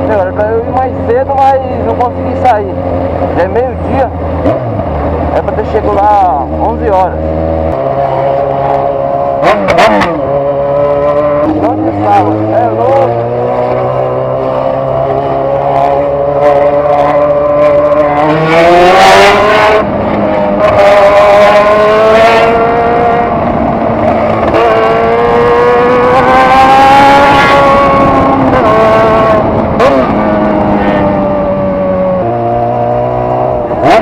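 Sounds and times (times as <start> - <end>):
motorcycle engine accelerating: 0.0 - 34.0
wind noise: 14.7 - 34.0.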